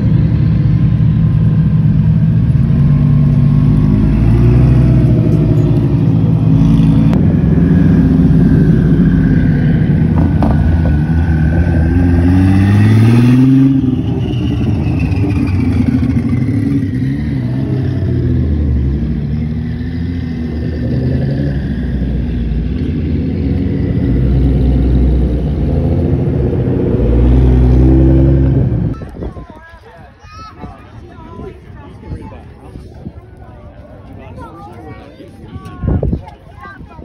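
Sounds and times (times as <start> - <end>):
sports cars passing: 0.0 - 29.0
engine revving hard: 6.4 - 29.0.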